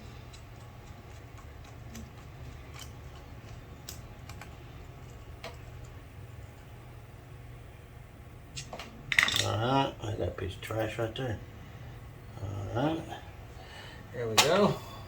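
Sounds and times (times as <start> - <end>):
steady low hum: 0.0 - 15.0
small metal parts clicking: 0.2 - 6.0, 9.1 - 9.6.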